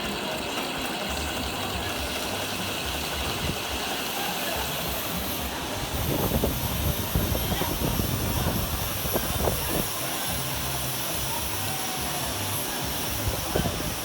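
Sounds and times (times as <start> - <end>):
lathe running: 0.0 - 14.0.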